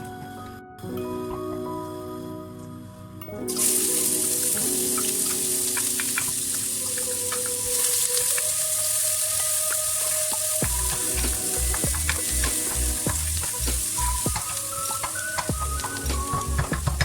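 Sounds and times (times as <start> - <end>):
background music: 0.0 - 17.0
food sizzling in a hot pan: 3.5 - 17.0.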